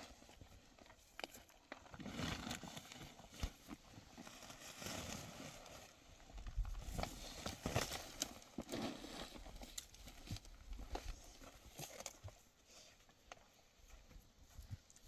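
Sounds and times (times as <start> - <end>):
footsteps on stony ground: 6.0 - 15.0.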